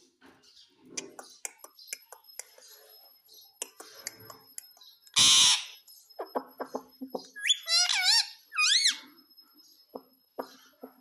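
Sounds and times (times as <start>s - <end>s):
parakeet chattering notes: 5.1s - 9.0s
parakeet harsh squawk: 5.2s - 5.8s, 7.4s - 9.0s.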